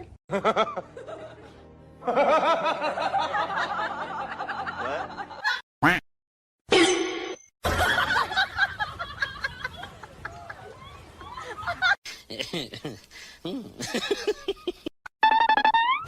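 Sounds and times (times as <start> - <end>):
people laughing: 0.3 - 5.6, 7.7 - 14.9.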